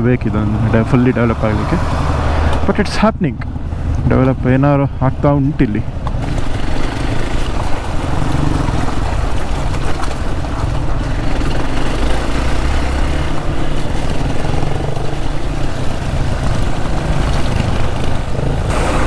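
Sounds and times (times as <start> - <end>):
wind and road noise: 0.0 - 19.0
motorcycle engine running: 3.5 - 19.0.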